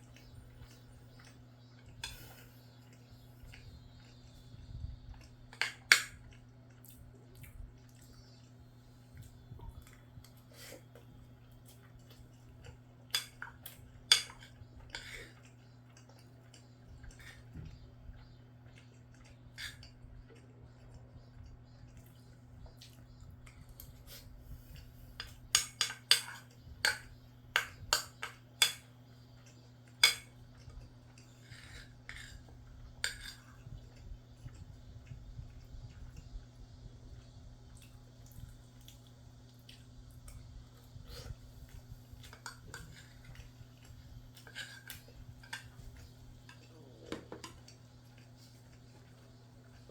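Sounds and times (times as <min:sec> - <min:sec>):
faint low hum: 0:00.0 - 0:49.9
utensils scraping a dish: 0:44.4 - 0:45.8.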